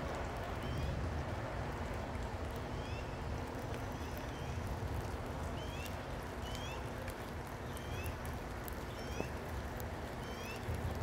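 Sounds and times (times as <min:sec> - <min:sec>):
rain hiss: 0:00.0 - 0:11.0.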